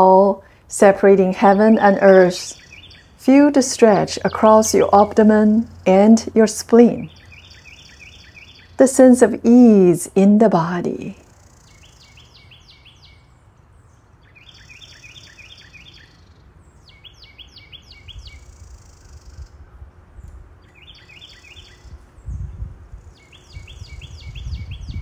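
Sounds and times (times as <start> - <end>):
songbird singing: 0.0 - 25.0.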